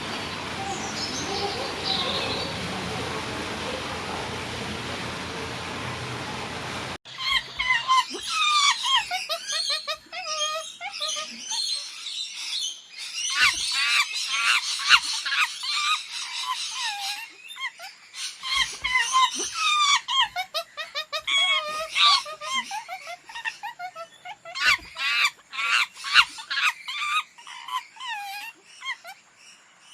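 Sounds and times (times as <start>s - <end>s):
chorus of animals chattering: 0.0s - 6.5s, 7.1s - 12.2s, 13.2s - 29.4s.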